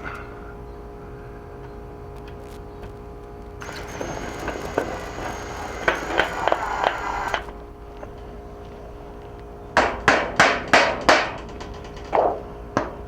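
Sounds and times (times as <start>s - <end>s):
small power tool whining: 3.6s - 8.2s.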